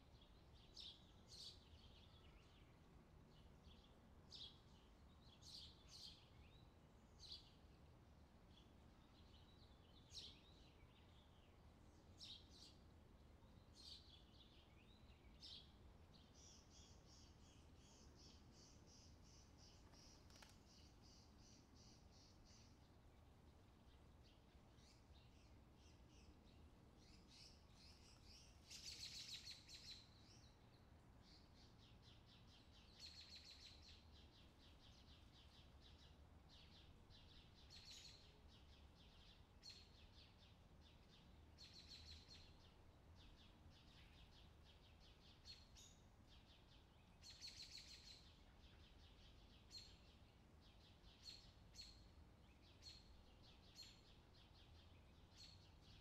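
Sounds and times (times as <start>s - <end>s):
low steady hum: 0.0s - 29.4s
faint bird chirps and trills: 0.0s - 56.0s.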